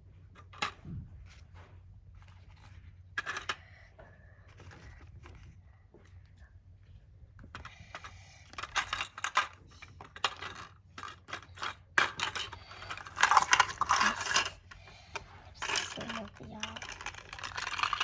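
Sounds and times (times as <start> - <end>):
plastic toy pieces clattering: 2.6 - 3.6, 7.5 - 18.0.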